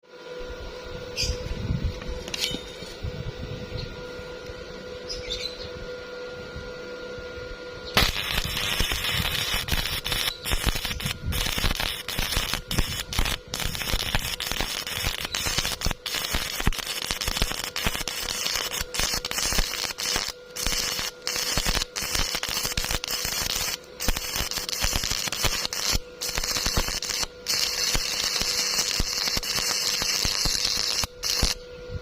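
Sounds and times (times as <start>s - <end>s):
electrical hum: 0.1s - 32.0s
welding arc crackling: 7.9s - 31.6s.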